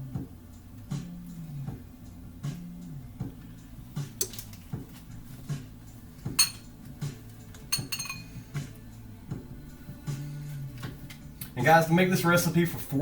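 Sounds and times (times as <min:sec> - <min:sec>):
instrumental music with beat: 0:00.0 - 0:11.8
kitchenware clinking: 0:06.3 - 0:06.8, 0:07.6 - 0:08.4.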